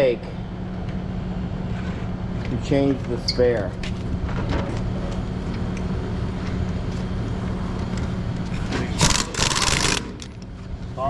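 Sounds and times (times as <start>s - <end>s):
vehicle hum with road noise: 0.0s - 11.0s
impact wrench rattling: 8.9s - 10.5s.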